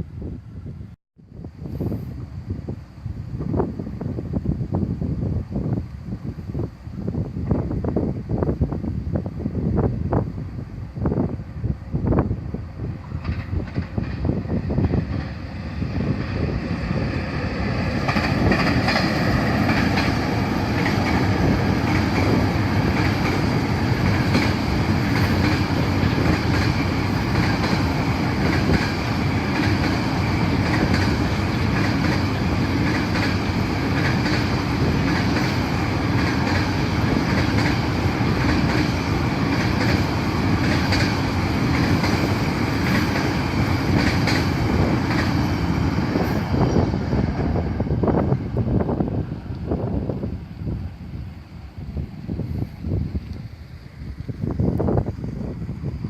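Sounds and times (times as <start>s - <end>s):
freight train wagons rolling past: 9.8s - 56.0s
wheels clicking over rail joints: 16.2s - 45.7s.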